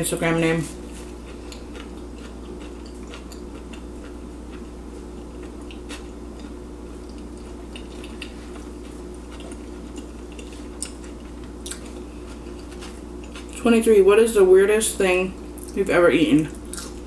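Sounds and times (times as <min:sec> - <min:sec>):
steady low hum: 0:00.0 - 0:17.0
chewing with wet mouth clicks: 0:01.3 - 0:04.7, 0:05.4 - 0:13.6, 0:15.6 - 0:15.8, 0:16.4 - 0:17.0.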